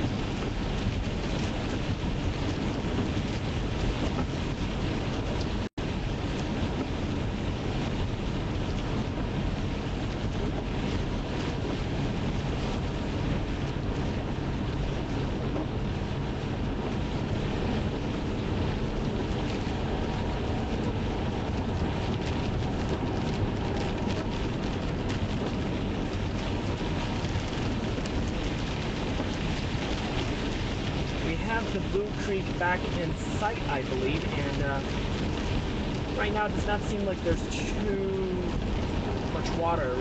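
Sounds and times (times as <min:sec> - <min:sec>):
wind noise: 0:00.0 - 0:40.0
tyre and engine rumble: 0:10.2 - 0:40.0.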